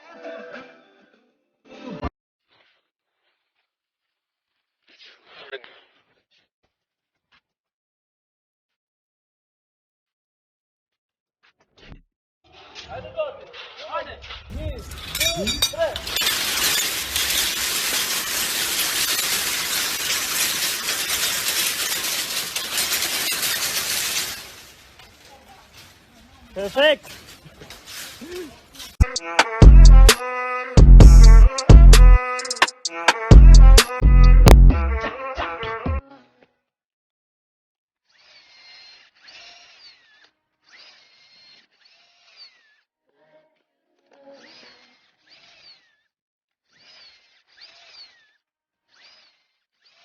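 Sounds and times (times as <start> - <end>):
faint power tool whirring: 15.6 - 25.3, 38.1 - 42.9, 44.4 - 46.1, 46.7 - 50.0.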